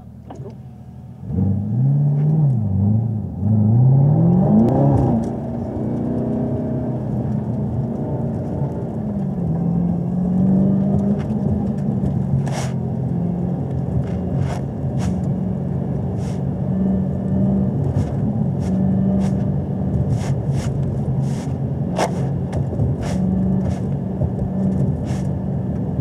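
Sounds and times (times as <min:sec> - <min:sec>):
car engine at low revs: 0:00.0 - 0:26.0
wet tyres hissing: 0:12.4 - 0:12.8, 0:16.2 - 0:16.5, 0:20.1 - 0:22.4, 0:23.0 - 0:23.9, 0:25.0 - 0:25.3.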